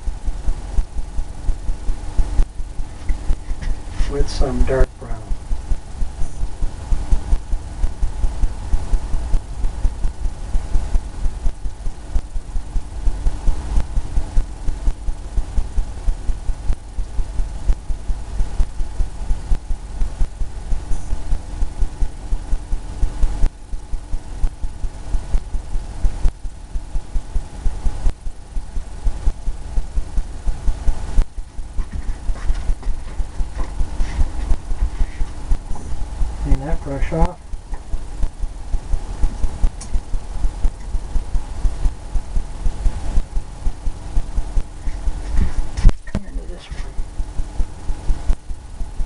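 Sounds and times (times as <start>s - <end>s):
paintbrush dabbing on canvas: 31.8s - 35.4s.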